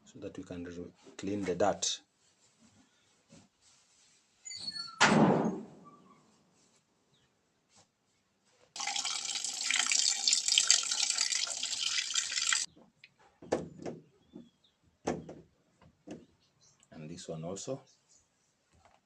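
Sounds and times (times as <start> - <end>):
tap water running: 8.8 - 12.7.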